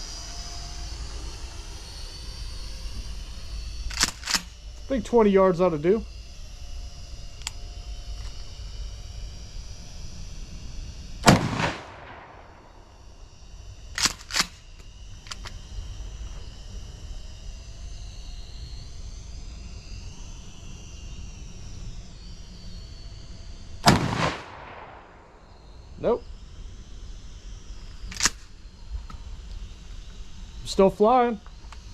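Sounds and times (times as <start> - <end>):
drone propellers whining: 0.0 - 31.9
shotgun pump clacks: 3.9 - 4.5, 14.0 - 14.6
shotgun shots with echo: 11.2 - 12.7, 23.8 - 25.3.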